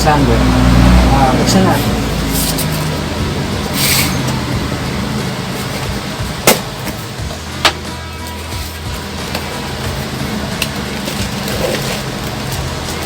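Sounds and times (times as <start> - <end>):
steady low hum: 0.0 - 13.0
cardboard packaging rustling: 8.2 - 13.0.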